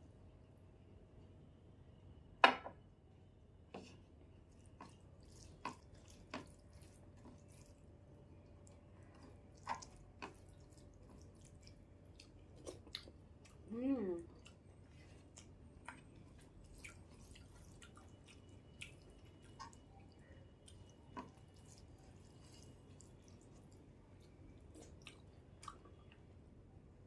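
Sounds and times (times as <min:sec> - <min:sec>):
wet eating clicks and smacks: 0:04.8 - 0:07.8, 0:08.4 - 0:13.7, 0:14.3 - 0:26.3.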